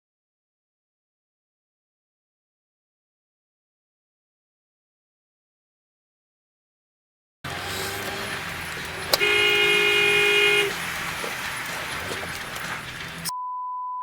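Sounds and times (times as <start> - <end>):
car horn honking: 7.5 - 13.3
traffic and engine noise: 7.5 - 13.3
censor bleep: 13.3 - 14.0.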